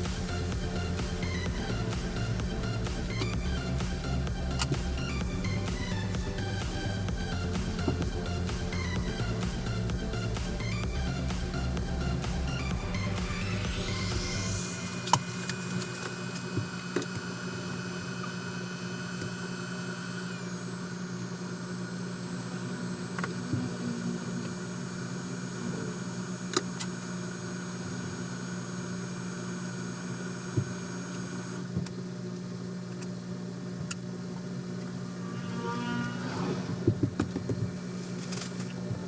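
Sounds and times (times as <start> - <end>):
high-pitched whines: 0.0 - 26.6, 34.4 - 38.7
electrical equipment humming: 0.0 - 39.0.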